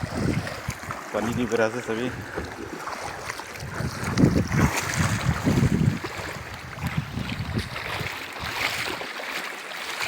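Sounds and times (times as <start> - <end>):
wind buffeting microphone: 0.0 - 9.0
river water rushing: 0.0 - 10.0.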